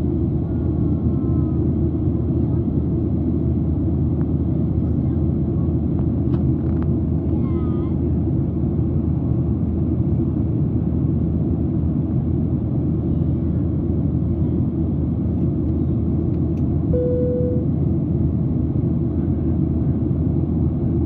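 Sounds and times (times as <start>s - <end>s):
airliner cabin roar: 0.0s - 21.0s
brief steady tone: 16.9s - 17.7s.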